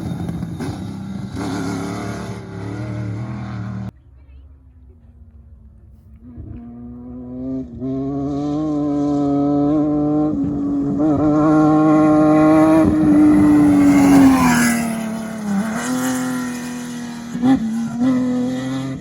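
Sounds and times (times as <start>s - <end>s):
engine passing at high revs: 0.0s - 3.9s, 6.1s - 19.0s
steady engine note: 0.0s - 8.4s.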